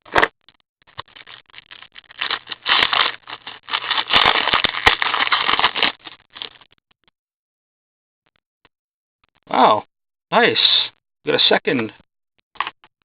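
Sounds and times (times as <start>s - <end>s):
wrapper crinkling and rustling: 0.9s - 6.6s
card pack wrapper tearing: 1.0s - 6.6s.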